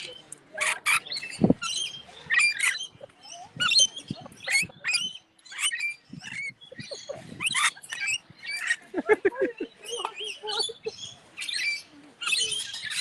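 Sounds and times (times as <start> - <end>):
birds chirping and squawking: 0.0 - 13.0.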